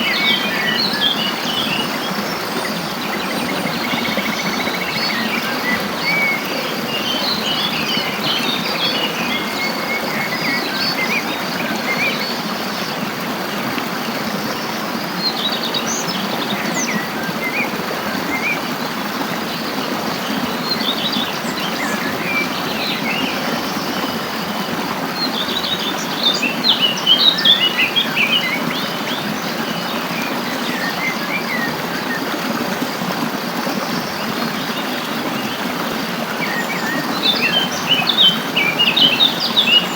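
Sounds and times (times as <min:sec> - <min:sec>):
songbirds chirping: 0:00.0 - 0:12.8, 0:13.4 - 0:39.9.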